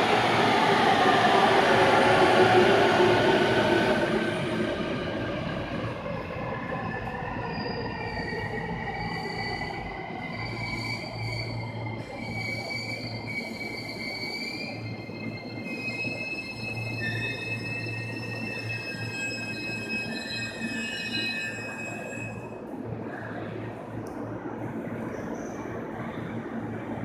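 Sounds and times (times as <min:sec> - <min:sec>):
train running noise: 0:00.0 - 0:27.0
brake and wheel squeals: 0:07.5 - 0:22.6.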